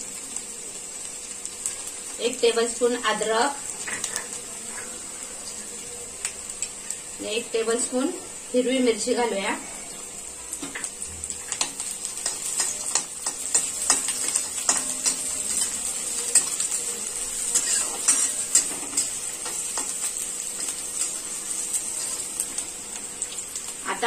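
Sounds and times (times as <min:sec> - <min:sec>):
garlic sizzling in hot oil: 0:00.0 - 0:24.0
spatula scraping a pan: 0:17.5 - 0:19.9.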